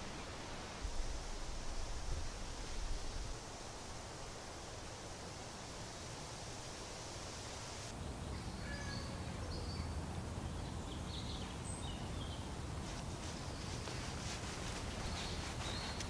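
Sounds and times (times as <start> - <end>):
plain hiss: 0.0 - 8.0
small birds chirping: 13.2 - 16.0.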